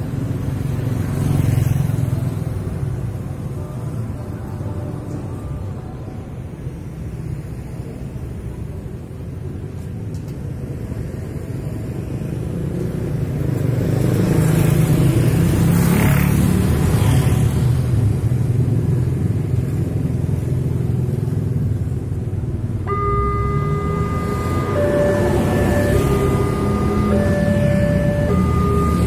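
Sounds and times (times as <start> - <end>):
vehicle engine rumble passing: 19.2 - 29.0.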